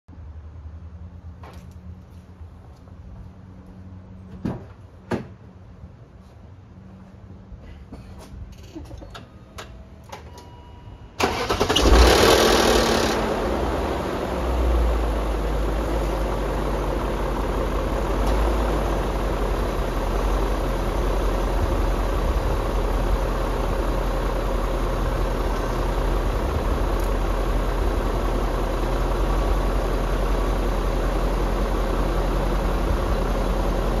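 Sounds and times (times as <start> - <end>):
car engine starting and idling: 11.1 - 34.0.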